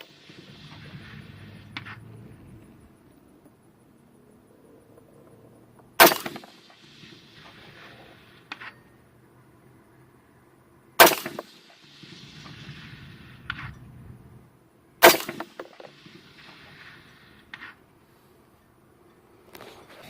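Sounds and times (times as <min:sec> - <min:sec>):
rifle shots: 0:06.0 - 0:08.4, 0:11.0 - 0:13.8, 0:15.0 - 0:17.8.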